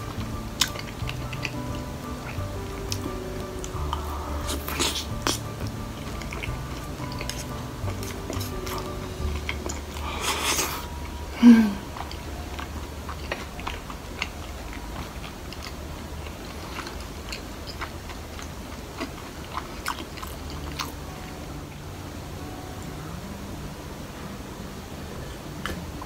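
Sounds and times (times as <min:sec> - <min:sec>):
chewing with wet clicks: 0:00.0 - 0:11.2, 0:11.8 - 0:21.5, 0:25.6 - 0:26.0
loud low mouth sound: 0:00.0 - 0:12.0.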